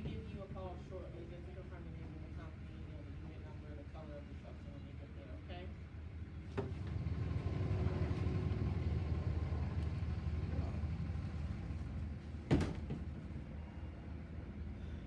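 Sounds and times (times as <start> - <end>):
truck engine rumbling: 6.8 - 13.6.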